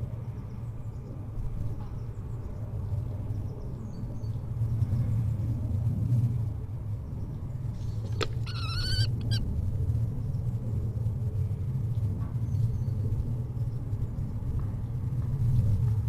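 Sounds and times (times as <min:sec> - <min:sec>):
kestrel trilled call: 0:08.1 - 0:09.4.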